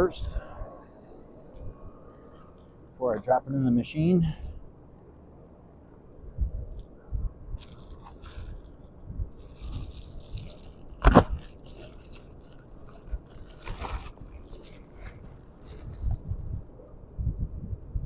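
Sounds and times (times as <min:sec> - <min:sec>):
packaging crunching: 0:07.6 - 0:16.2
packaging rustle: 0:07.6 - 0:16.2.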